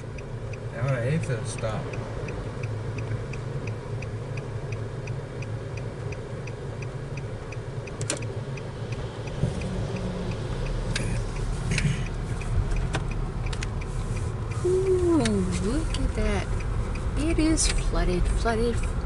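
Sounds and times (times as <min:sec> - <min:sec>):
engine and road hum: 0:00.0 - 0:19.0
indicator flasher ticking: 0:00.0 - 0:19.0
sharp click: 0:08.0 - 0:08.3.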